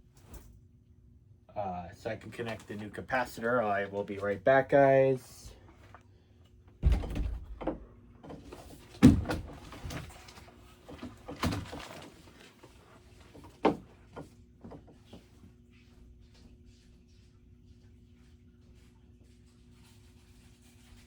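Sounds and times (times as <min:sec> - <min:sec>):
door knocks and thumps: 0:06.8 - 0:07.9, 0:09.0 - 0:09.9.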